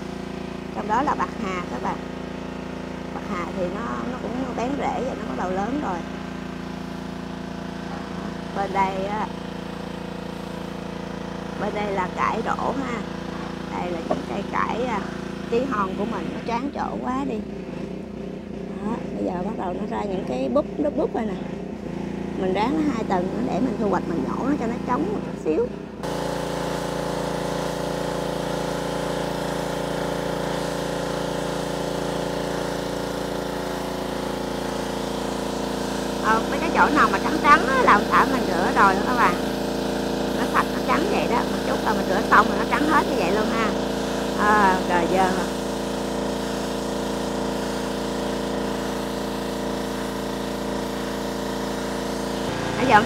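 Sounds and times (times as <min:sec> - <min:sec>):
pressure washer engine running: 0:00.0 - 0:53.0
hiss of water spray: 0:26.1 - 0:53.0.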